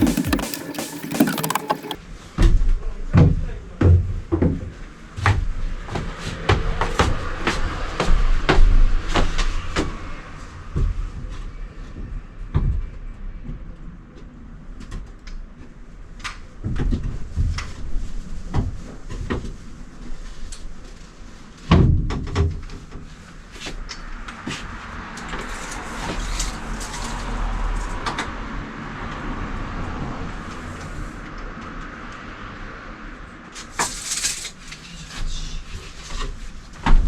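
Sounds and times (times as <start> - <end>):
knocks and thumps of building work: 0.0 - 2.0.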